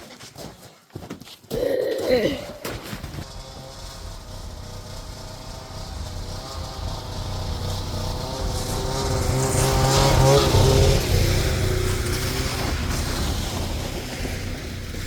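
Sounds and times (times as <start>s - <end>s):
snowmobile engine under throttle: 2.3s - 15.0s.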